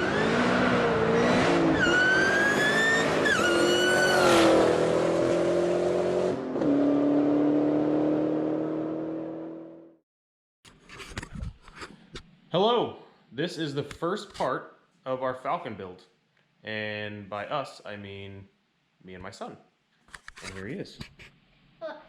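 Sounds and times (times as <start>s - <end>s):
high squealing tone: 0.0s - 4.7s
car engine high revs: 0.0s - 9.9s.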